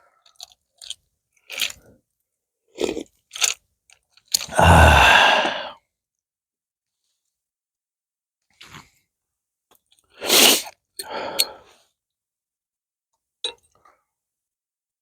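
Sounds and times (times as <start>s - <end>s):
person sneezing: 4.5s - 5.7s, 10.2s - 10.7s
faint breath: 4.5s - 5.8s, 11.0s - 11.8s.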